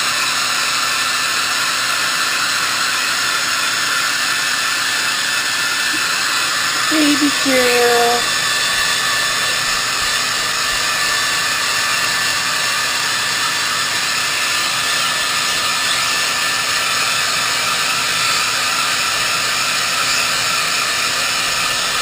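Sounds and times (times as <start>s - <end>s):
hair dryer blowing: 0.6s - 22.0s.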